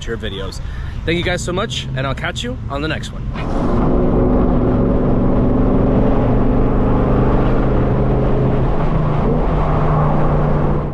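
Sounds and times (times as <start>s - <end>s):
car exhaust drone: 0.6s - 10.9s.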